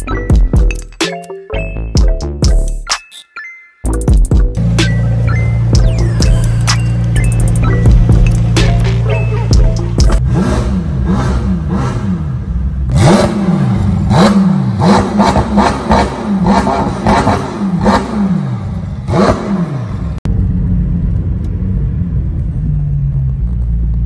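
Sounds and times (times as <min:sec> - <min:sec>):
car engine revving: 0:04.6 - 0:23.6.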